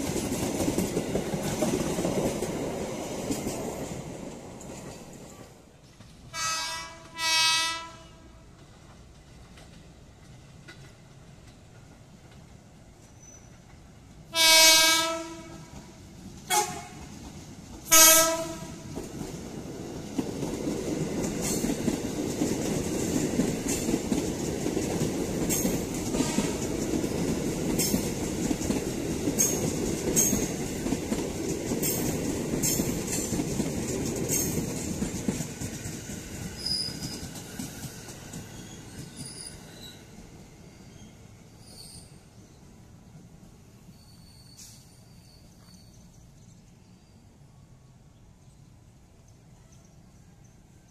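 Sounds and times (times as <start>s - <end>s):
wheels clicking over rail joints: 0.0s - 6.4s, 8.5s - 14.0s, 15.1s - 39.9s
trains rumbling past: 0.0s - 50.9s
electric train horn: 6.3s - 8.4s, 14.3s - 15.9s, 16.5s - 17.1s, 17.9s - 18.9s, 26.1s - 26.7s.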